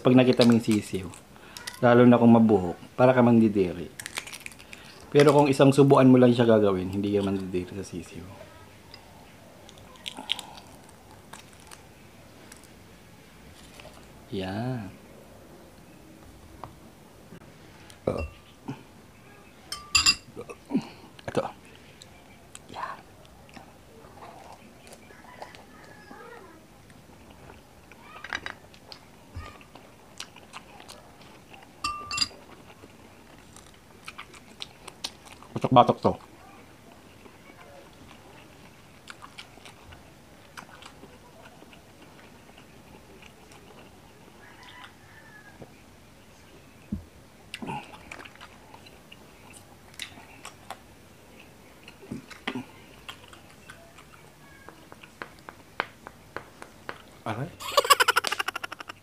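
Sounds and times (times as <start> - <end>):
eggshell clicking and crackling: 0.2 - 1.9, 3.9 - 5.6
person chewing: 3.9 - 5.4, 9.0 - 11.9, 28.7 - 35.6, 37.2 - 44.0, 47.5 - 55.2
metal spoon clinking on a bowl: 19.7 - 20.3, 31.8 - 32.4.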